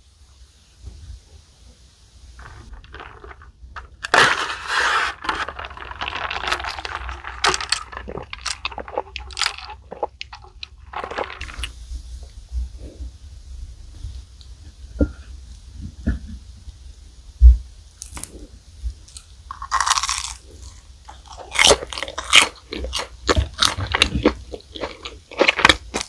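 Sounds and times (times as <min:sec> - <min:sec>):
food packaging crackling: 0:02.4 - 0:12.3, 0:18.0 - 0:26.0.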